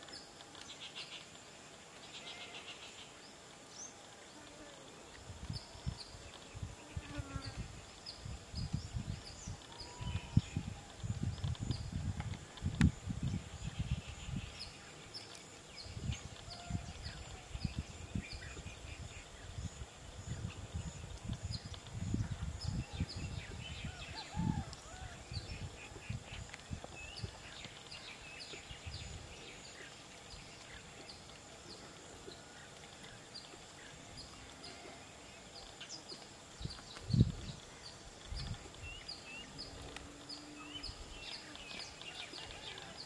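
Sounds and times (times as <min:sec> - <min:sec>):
wind buffeting microphone: 0:05.2 - 0:14.9, 0:15.7 - 0:30.8, 0:36.6 - 0:40.1.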